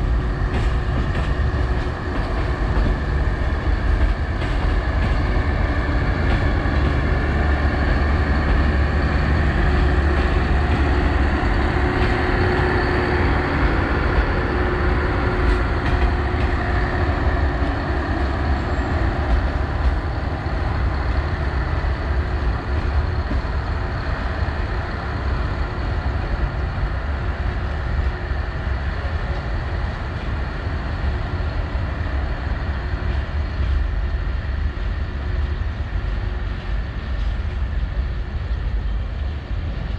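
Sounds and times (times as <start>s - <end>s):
train carriages rolling over rails: 0.0s - 31.6s.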